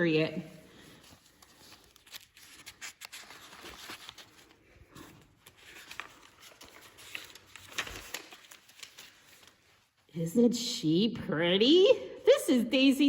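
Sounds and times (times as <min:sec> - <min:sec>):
album pages rustling and clicking: 0:01.1 - 0:09.6.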